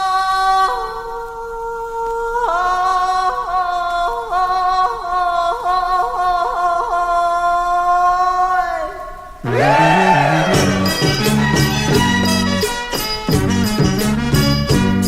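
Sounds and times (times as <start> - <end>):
organ-like chord with ornaments: 9.4 - 12.8.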